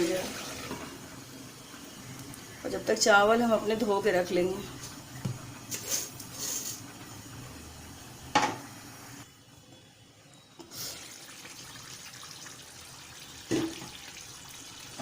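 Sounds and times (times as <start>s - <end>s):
tap water running into a vessel: 10.6s - 15.0s.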